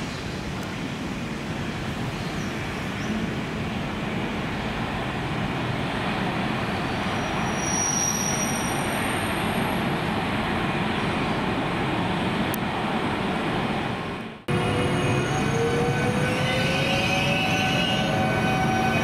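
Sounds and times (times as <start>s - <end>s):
faint high squeal: 7.2s - 9.0s.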